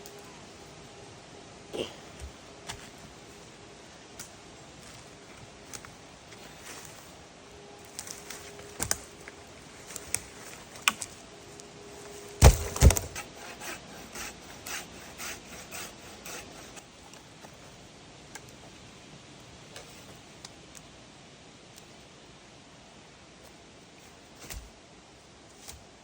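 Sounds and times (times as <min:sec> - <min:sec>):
wood snapping: 0:10.8 - 0:11.1, 0:12.4 - 0:14.3
rhythmic rasping strokes: 0:12.1 - 0:16.8.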